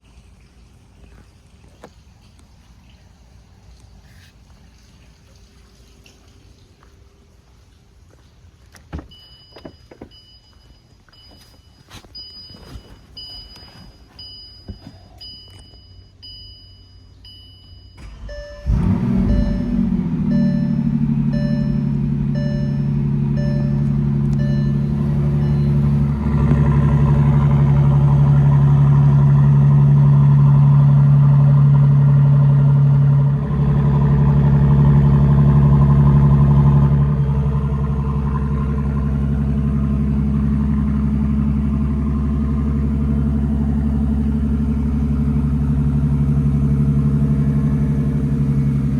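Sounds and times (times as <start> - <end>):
car engine starting and idling: 1.7 - 48.9
car warning chimes beeping: 9.0 - 33.9.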